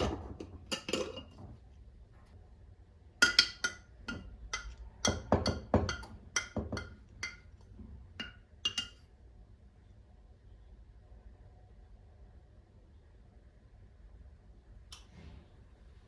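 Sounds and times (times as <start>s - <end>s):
dishes and cutlery clinking: 0.0s - 1.5s, 3.2s - 9.0s.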